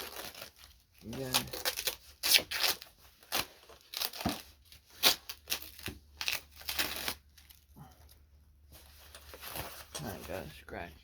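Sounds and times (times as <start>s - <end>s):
packing material crinkling: 0.0s - 7.7s.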